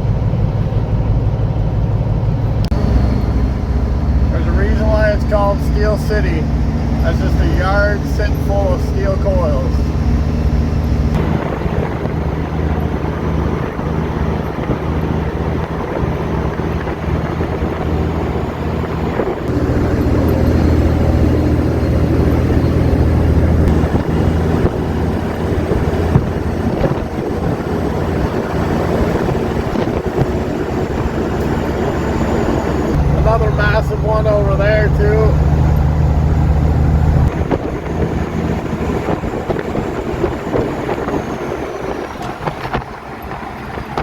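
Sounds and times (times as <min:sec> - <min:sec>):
diesel engine drone: 0:00.0 - 0:44.0
road and tyre noise: 0:00.0 - 0:44.0.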